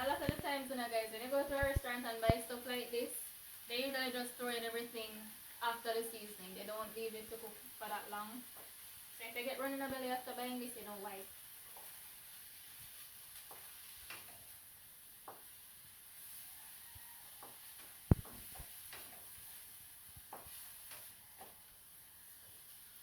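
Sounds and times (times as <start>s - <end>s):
onions sizzling in hot oil: 0.0s - 23.0s
sharp knock: 18.1s - 18.4s.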